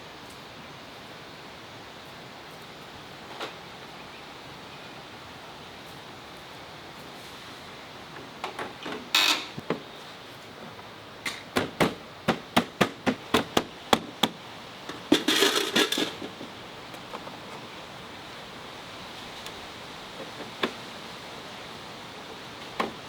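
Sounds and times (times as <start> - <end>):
rattling clatter: 14.9 - 16.5.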